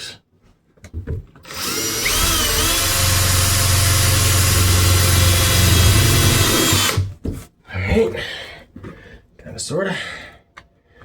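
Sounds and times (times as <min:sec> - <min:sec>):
power drill whining: 0:01.4 - 0:07.1.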